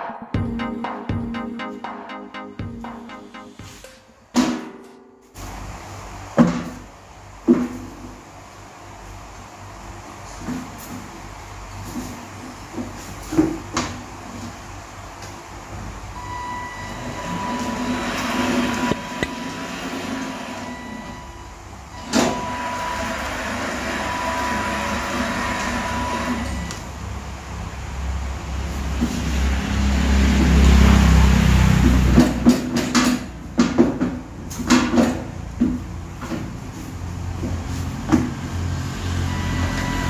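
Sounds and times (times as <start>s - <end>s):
motor and gear whine: 16.2s - 26.9s, 38.6s - 40.0s.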